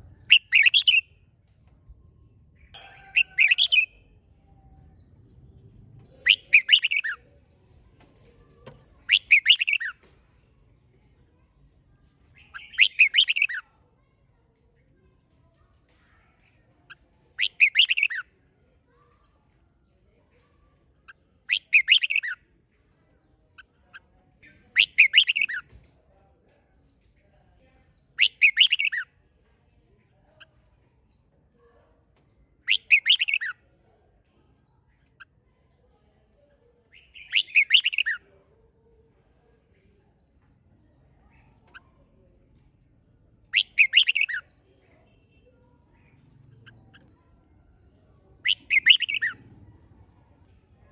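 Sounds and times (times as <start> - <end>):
faint bird chirps: 0.0 - 1.3, 6.0 - 10.1, 12.4 - 14.2, 15.5 - 18.3, 20.0 - 22.4, 23.1 - 25.8, 27.7 - 29.1, 32.6 - 33.7, 34.5 - 38.3, 41.1 - 50.8
bird singing loud phrases: 0.1 - 1.2, 6.2 - 8.1, 8.8 - 10.0, 12.4 - 13.6, 16.3 - 18.2, 21.0 - 22.4, 24.4 - 25.7, 27.8 - 29.1, 32.6 - 33.6, 36.8 - 38.8, 43.5 - 44.6, 47.9 - 49.5.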